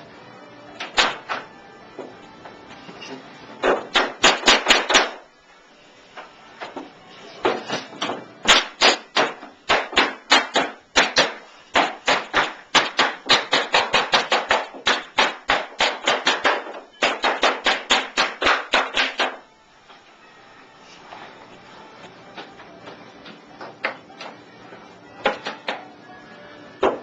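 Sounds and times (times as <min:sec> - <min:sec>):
hammer strikes: 0:00.8 - 0:02.2, 0:03.1 - 0:05.2, 0:06.6 - 0:19.5, 0:26.8 - 0:27.0.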